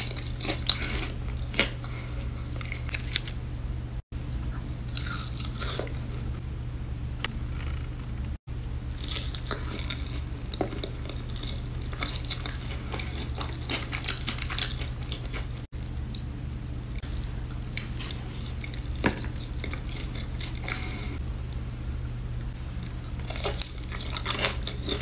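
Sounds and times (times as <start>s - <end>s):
chewing crunchy chicken wing: 0.0s - 3.4s, 4.7s - 6.3s, 8.9s - 16.3s, 17.0s - 21.6s, 22.7s - 25.0s
steady low hum: 0.0s - 25.0s.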